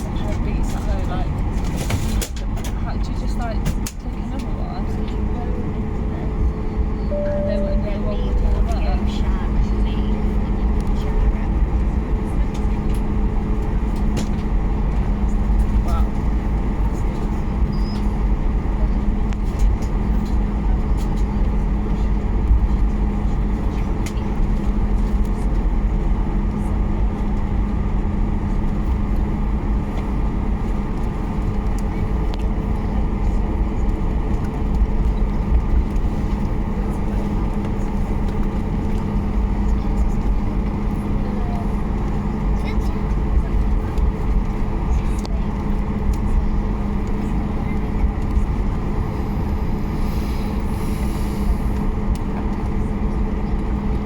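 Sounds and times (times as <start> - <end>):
airplane cabin engine rumble: 0.0 - 54.0
cabin air system hum: 7.0 - 13.9.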